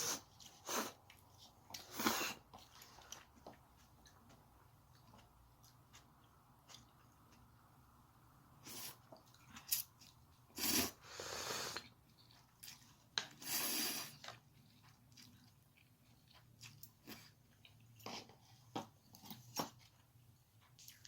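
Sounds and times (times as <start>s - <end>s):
chewing with mouth clicks: 0.3s - 7.5s, 11.8s - 18.5s, 19.1s - 21.0s.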